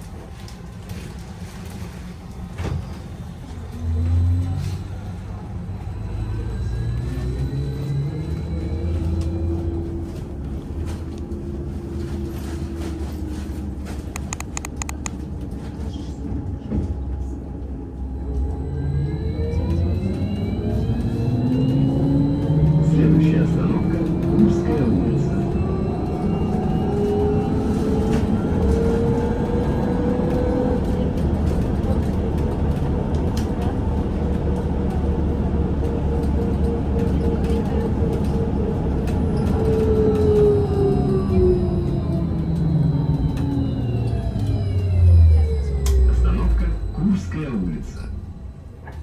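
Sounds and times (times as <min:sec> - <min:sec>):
road rumble: 0:00.9 - 0:49.0
short sharp clicks: 0:14.2 - 0:15.1.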